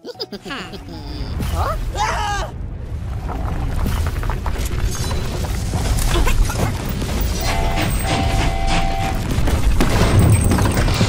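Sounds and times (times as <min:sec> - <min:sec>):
deep rumble of mine wagons: 0:00.9 - 0:11.0
clatter and knocks: 0:03.7 - 0:11.0.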